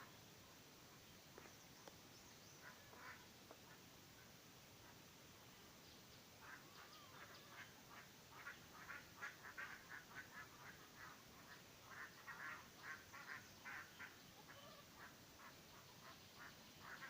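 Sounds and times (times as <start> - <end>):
faint poultry calling: 2.5 - 5.0, 6.4 - 17.0.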